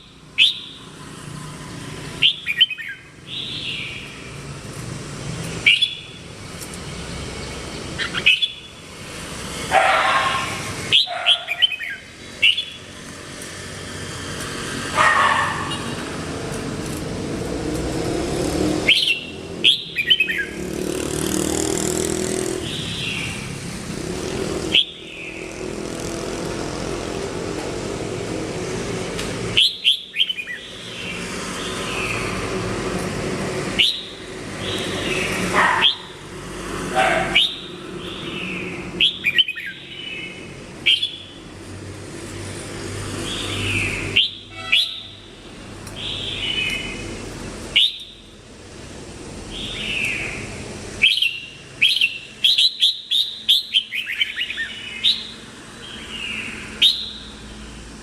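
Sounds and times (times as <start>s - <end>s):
motor vehicle running: 0.0s - 52.5s
bird singing whistled phrases: 0.4s - 0.8s, 2.2s - 4.0s, 5.6s - 6.1s, 8.0s - 8.7s, 10.9s - 12.8s, 18.9s - 20.5s, 33.8s - 34.1s, 47.8s - 48.2s, 56.8s - 57.3s.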